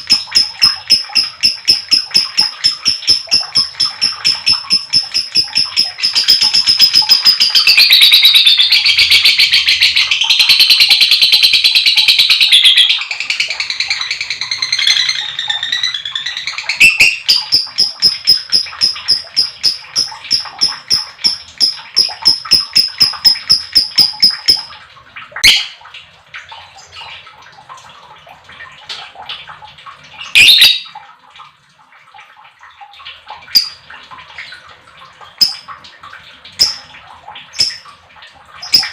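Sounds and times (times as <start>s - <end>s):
lovebird chattering song: 0.0s - 24.7s
sharp loud bird calls: 0.0s - 24.7s.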